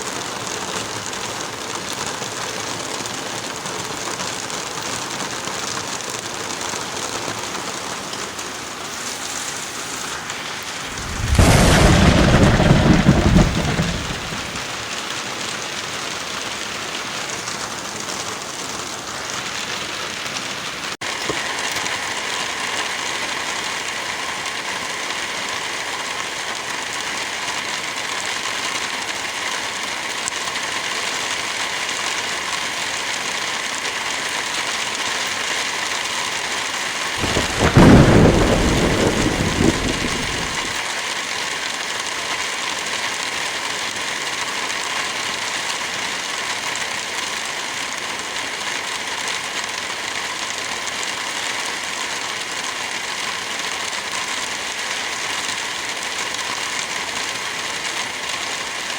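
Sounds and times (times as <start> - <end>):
heavy rain: 0.0 - 58.9
thunder clap and rumble: 10.8 - 15.0, 37.2 - 40.8.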